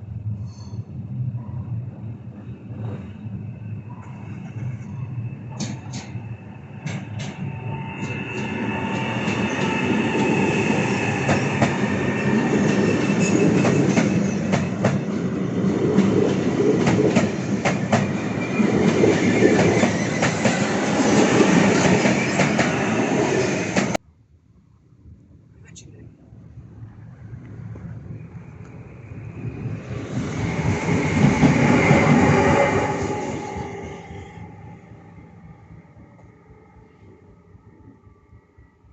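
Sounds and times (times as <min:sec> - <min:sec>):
train passing: 0:00.0 - 0:24.0, 0:26.3 - 0:38.9
faint high wheel squeal: 0:03.6 - 0:14.4
wheels clacking over rail joints: 0:15.9 - 0:23.0.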